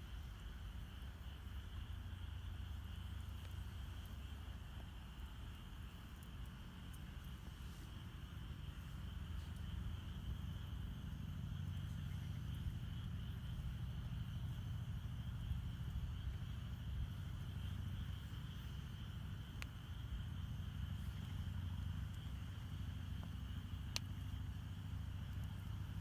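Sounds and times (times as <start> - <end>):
night insects chirring: 0.0 - 26.0
campfire crackling: 0.2 - 26.0.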